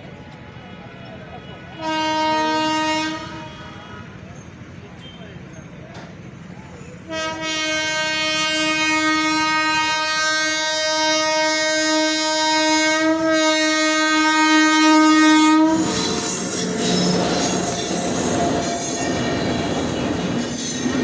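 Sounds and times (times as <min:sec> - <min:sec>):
train horn blast: 0:01.8 - 0:04.2, 0:07.1 - 0:19.2
train wheels squealing on rails: 0:03.5 - 0:07.1, 0:15.7 - 0:21.0.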